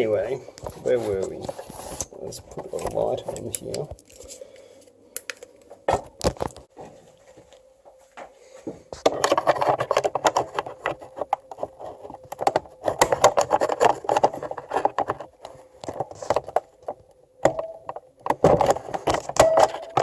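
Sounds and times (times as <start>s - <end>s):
faint steady hum: 0.0s - 20.0s
plastic and metal clicks and scrapes: 9.0s - 20.0s.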